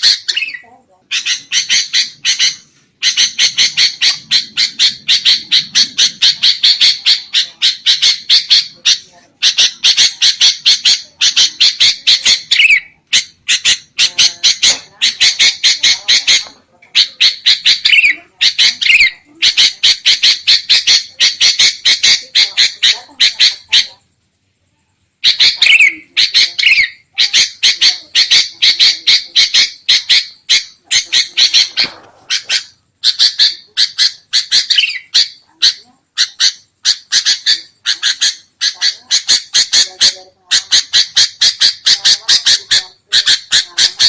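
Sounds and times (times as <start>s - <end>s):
bulbuls chattering calls: 0.0s - 24.1s, 25.2s - 44.0s.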